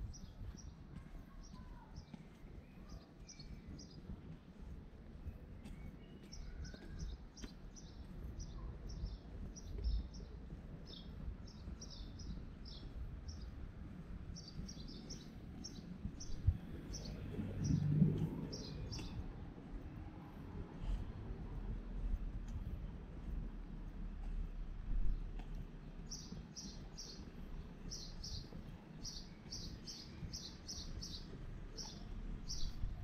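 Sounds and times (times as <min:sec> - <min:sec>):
low street rumble: 0:00.0 - 0:33.0
small birds chirping: 0:00.0 - 0:33.0.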